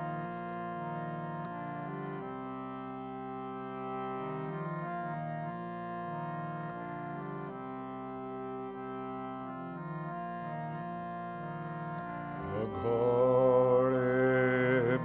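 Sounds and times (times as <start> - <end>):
harmonium chords: 0.0 - 15.0
person chanting: 12.4 - 15.0.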